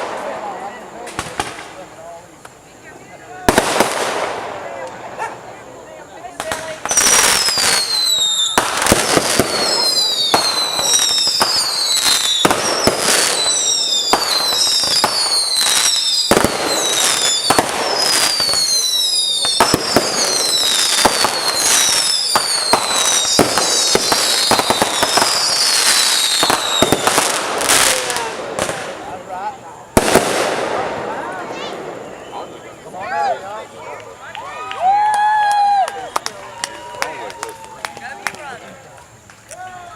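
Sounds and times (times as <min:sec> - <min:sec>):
fireworks bangs and crackles: 0:00.0 - 0:39.9
fireworks whistles falling in pitch: 0:06.3 - 0:29.0, 0:29.9 - 0:33.4.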